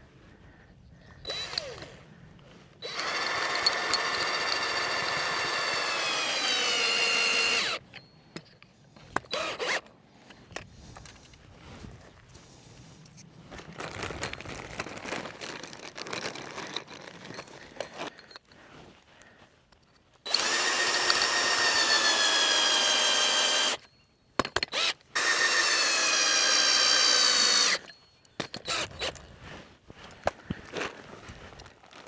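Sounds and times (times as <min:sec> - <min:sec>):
power tool motor whine: 0:01.3 - 0:01.9, 0:02.8 - 0:07.8, 0:09.3 - 0:09.8, 0:20.3 - 0:23.8, 0:24.7 - 0:27.8.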